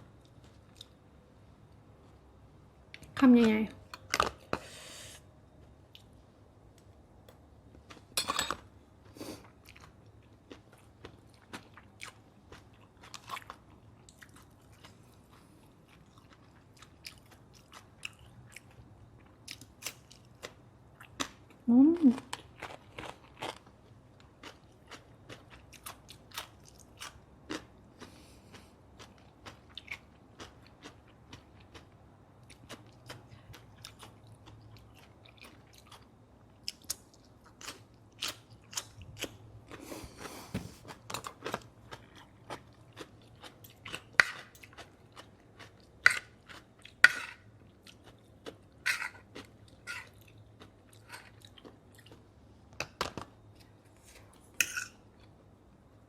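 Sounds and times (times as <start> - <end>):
close chewing and crunching: 9.0 - 52.4.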